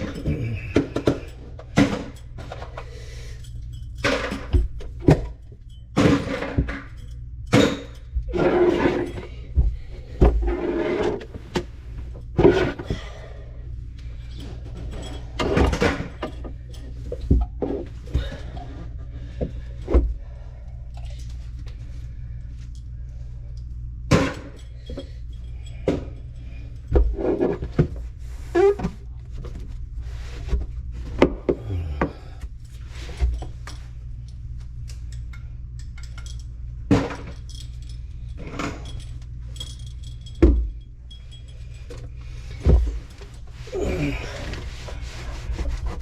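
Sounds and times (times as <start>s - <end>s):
tools clinking and knocking: 0.0s - 10.4s, 14.2s - 20.0s, 23.5s - 28.0s, 31.4s - 43.4s
steady low hum: 0.0s - 46.0s.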